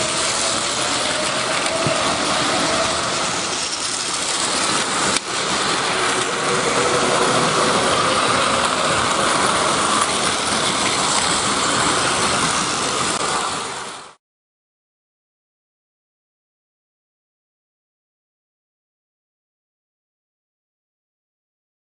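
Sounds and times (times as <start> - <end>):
train rushing on rails: 0.0 - 14.2.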